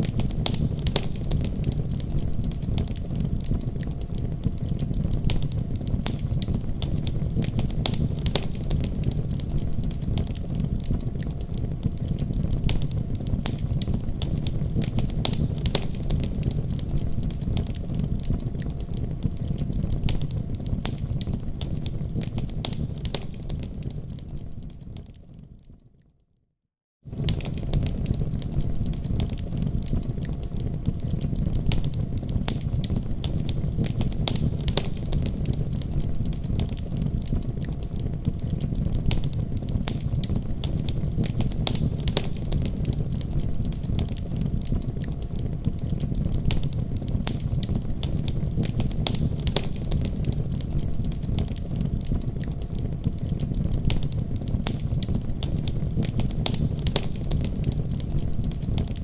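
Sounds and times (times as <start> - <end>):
wood fire crackling: 0.0 - 26.0, 27.1 - 59.0.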